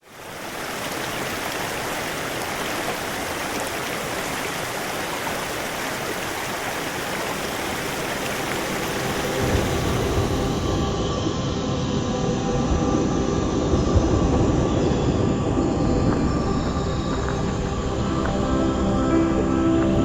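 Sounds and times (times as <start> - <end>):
steady rain falling: 0.0 - 11.0, 14.9 - 20.0
low rumble: 9.3 - 20.0.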